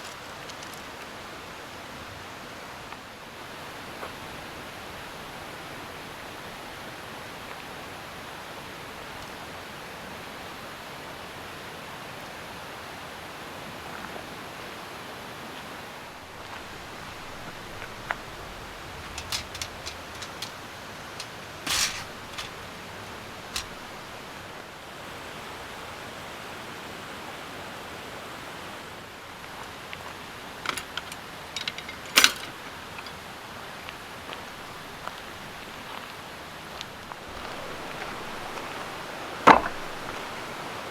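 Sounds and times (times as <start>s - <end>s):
steady hiss: 16.0s - 25.4s, 29.1s - 40.9s
light clicks and knocks: 16.2s - 24.4s, 36.8s - 40.4s.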